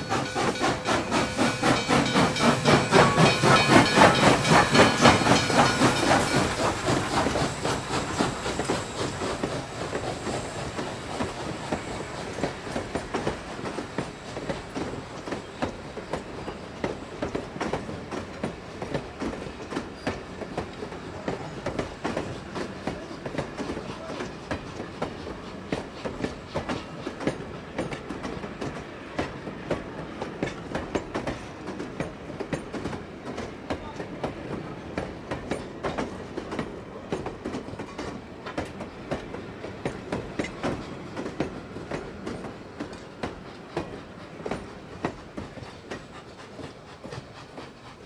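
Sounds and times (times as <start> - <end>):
train rumble: 0.0 - 48.0
train wheels clicking on rail joints: 0.0 - 48.0.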